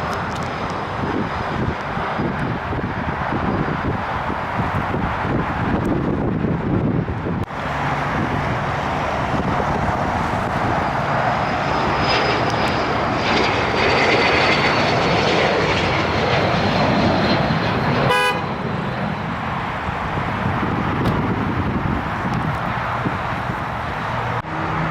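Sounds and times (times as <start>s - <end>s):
jet airliner flying past: 0.0s - 24.9s
horn toot: 18.0s - 18.5s.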